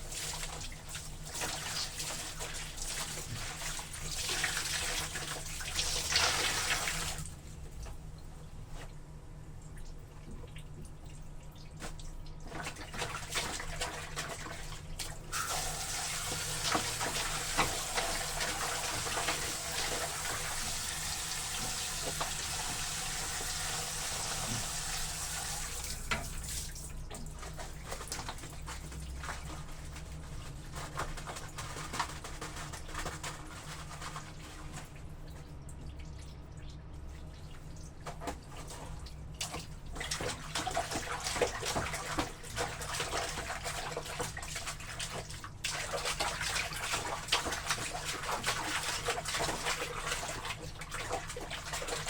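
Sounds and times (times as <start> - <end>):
tap water running into basin: 0.0 - 8.0, 9.7 - 52.0
water dripping and splashing: 0.0 - 8.9, 9.6 - 52.0.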